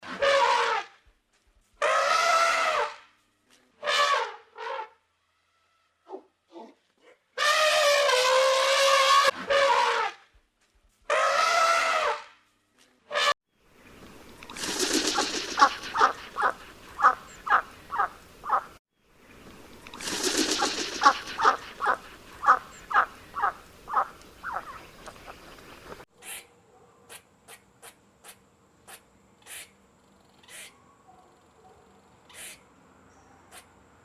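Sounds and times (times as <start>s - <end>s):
bird short calls: 14.5s - 18.8s, 19.8s - 26.5s.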